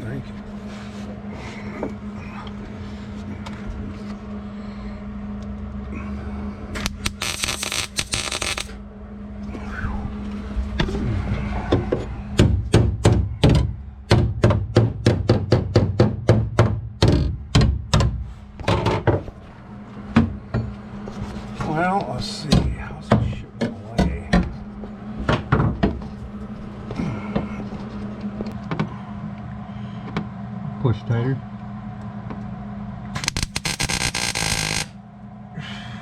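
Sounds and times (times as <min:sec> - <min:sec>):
steady low hum: 0:00.0 - 0:36.0
harsh rasping: 0:06.8 - 0:08.8.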